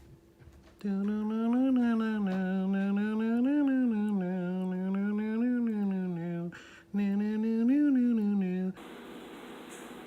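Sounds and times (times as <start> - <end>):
person humming: 0.8 - 8.8.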